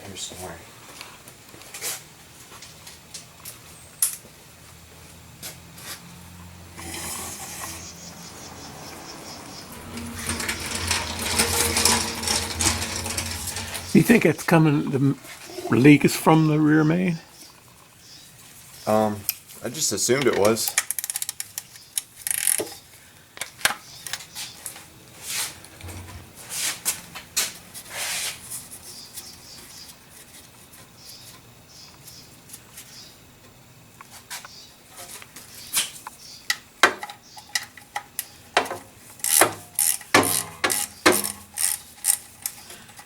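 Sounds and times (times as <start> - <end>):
rubbing or scraping sounds: 6.8 - 8.0, 9.6 - 15.8, 25.2 - 28.9.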